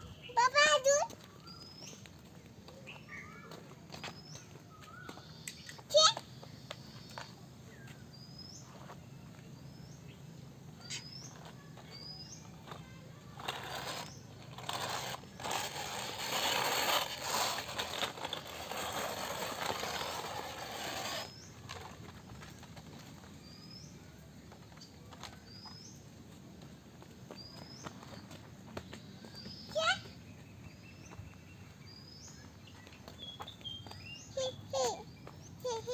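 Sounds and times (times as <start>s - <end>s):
bird chirping: 0.0s - 15.6s, 27.3s - 35.9s.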